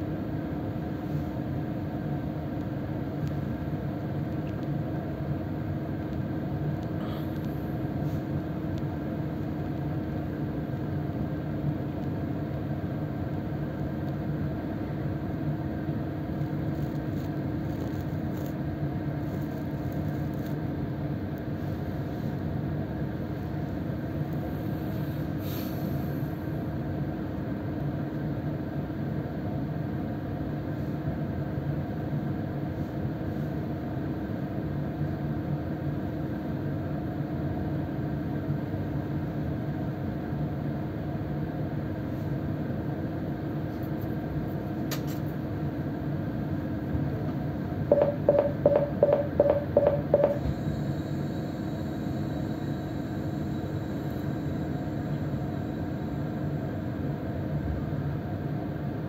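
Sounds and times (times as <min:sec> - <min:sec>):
train equipment humming: 0:41.7 - 0:58.9
door warning beeps: 0:47.9 - 0:50.5.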